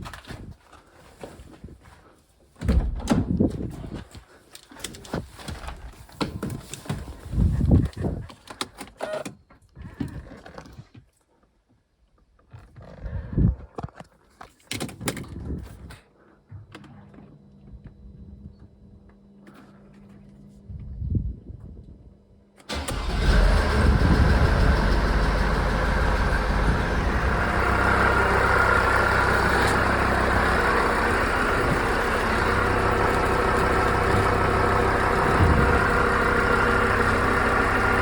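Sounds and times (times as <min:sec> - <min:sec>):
knocks and thunks of car work: 0:02.6 - 0:03.7
steady low hum: 0:23.6 - 0:38.0.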